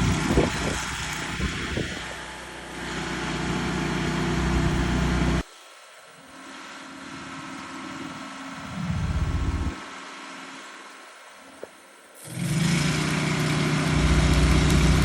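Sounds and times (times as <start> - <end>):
engine running: 0.0 - 5.4, 7.1 - 10.7, 12.2 - 15.0
quiet steady hum: 5.4 - 9.9.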